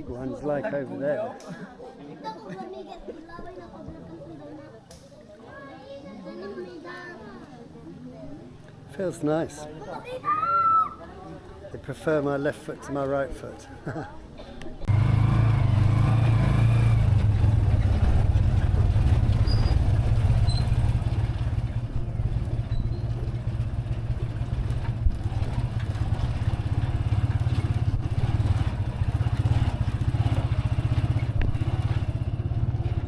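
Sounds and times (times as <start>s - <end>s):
motorcycle engine running: 14.9s - 33.0s.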